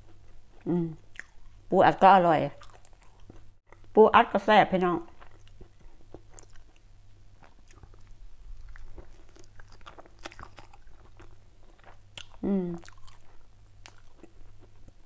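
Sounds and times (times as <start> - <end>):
person chewing soft sandwich: 0.0 - 1.6, 2.6 - 3.9, 5.1 - 15.0
low steady hum: 0.0 - 15.0
person humming appreciatively: 0.6 - 1.0, 12.4 - 12.8.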